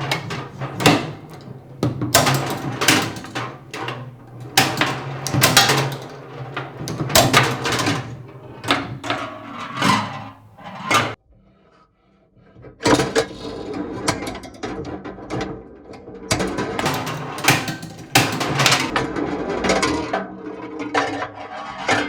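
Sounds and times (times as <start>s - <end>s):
mechanical parts clattering: 0.0s - 11.2s, 16.8s - 18.9s.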